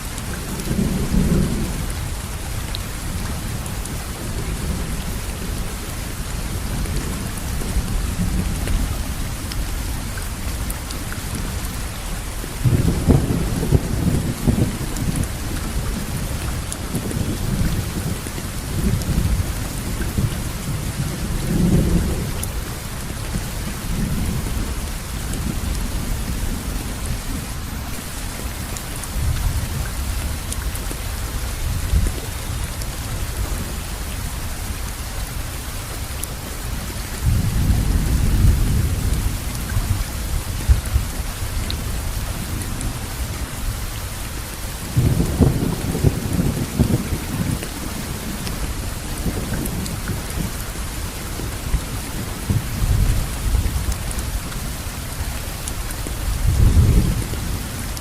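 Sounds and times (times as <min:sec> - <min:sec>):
steady rainfall: 0:00.0 - 0:58.0
low rolling thunder: 0:00.3 - 0:02.2, 0:12.6 - 0:30.4, 0:37.2 - 0:43.2, 0:44.8 - 0:54.9, 0:56.2 - 0:58.0.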